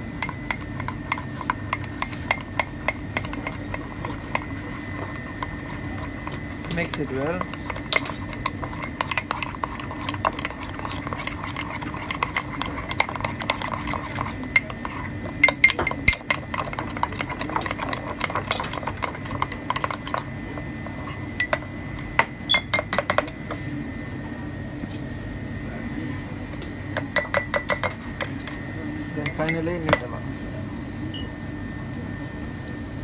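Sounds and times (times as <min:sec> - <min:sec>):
spoon clinking in batter bowl: 0:00.0 - 0:20.3, 0:21.3 - 0:23.5, 0:26.6 - 0:28.3, 0:29.2 - 0:30.1.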